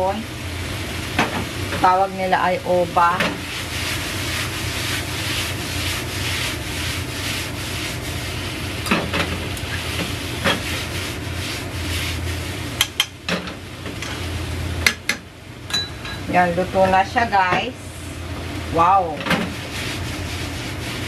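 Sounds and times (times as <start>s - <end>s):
food sizzling in a frying pan: 0.0s - 14.9s.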